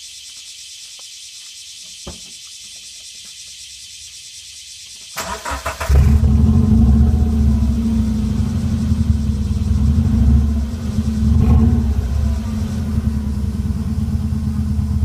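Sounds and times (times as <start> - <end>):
engine starter cranking: 5.2 - 6.5
engine running with rumbling exhaust: 5.6 - 15.0.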